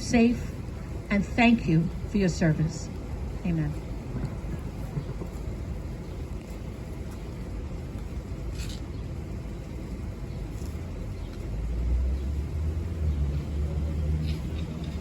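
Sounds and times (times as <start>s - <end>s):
motor vehicle passing: 10.5s - 15.0s.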